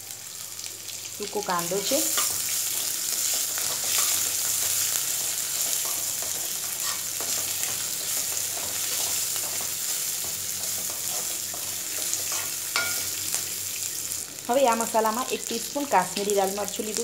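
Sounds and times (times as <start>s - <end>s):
onions and spices sizzling in oil: 0.0s - 17.0s
spatula scraping and tapping pan: 2.1s - 13.1s.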